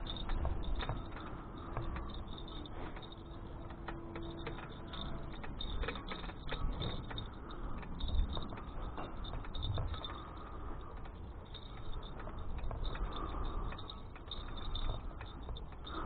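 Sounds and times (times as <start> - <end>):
bicycle clicks and rattles: 0.0 - 16.0
bicycle riding rumble: 0.0 - 16.0.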